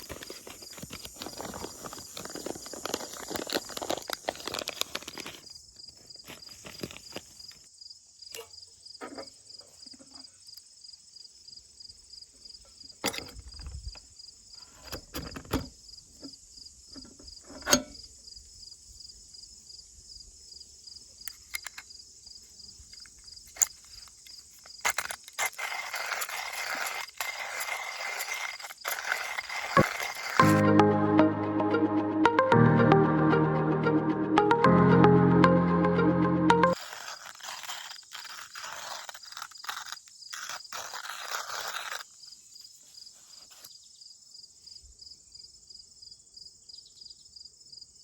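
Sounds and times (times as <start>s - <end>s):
insects chirping: 0.0s - 30.5s, 36.8s - 48.0s
rough rasping noise: 23.5s - 30.6s, 36.6s - 42.1s.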